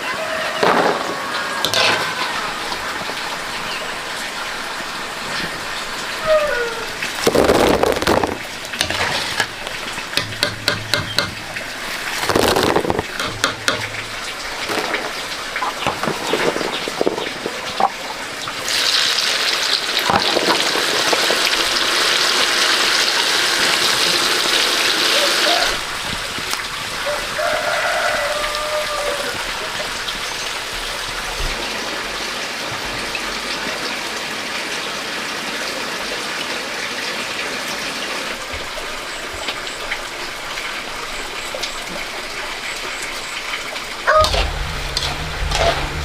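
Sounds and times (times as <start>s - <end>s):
knocks and scrapes: 7.2s - 18.2s, 44.1s - 46.0s.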